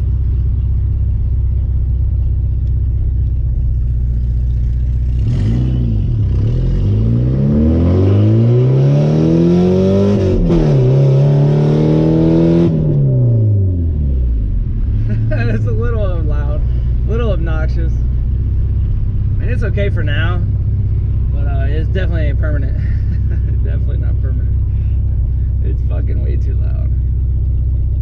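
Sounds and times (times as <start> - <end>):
car engine through loud exhaust: 0.0 - 28.0.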